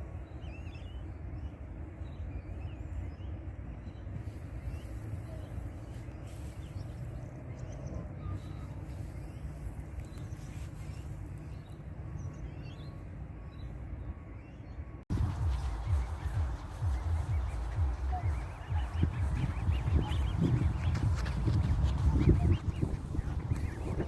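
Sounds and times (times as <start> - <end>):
faint bird chirps: 0.0 - 24.0
low rumble: 15.1 - 24.0.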